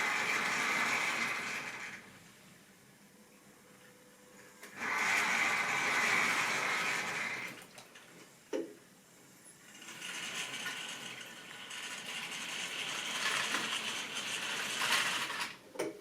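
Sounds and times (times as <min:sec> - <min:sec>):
model train rumbling on track: 0:00.0 - 0:02.0, 0:04.8 - 0:07.5, 0:09.7 - 0:15.6.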